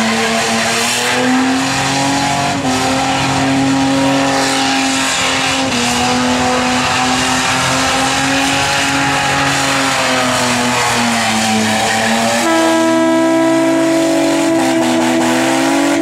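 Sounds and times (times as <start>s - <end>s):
tyres spinning and screeching: 0.0s - 12.4s
car engine at high revs: 0.0s - 16.0s.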